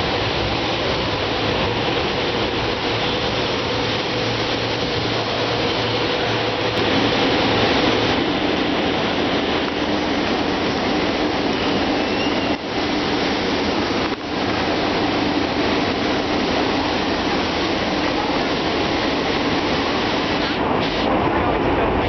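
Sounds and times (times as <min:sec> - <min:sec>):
train rail rumble and rattle: 0:00.0 - 0:22.0.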